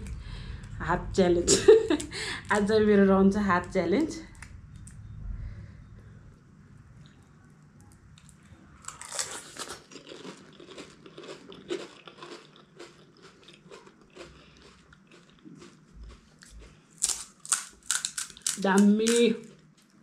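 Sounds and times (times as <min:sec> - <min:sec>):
crisp snack crunching: 0:08.2 - 0:20.0.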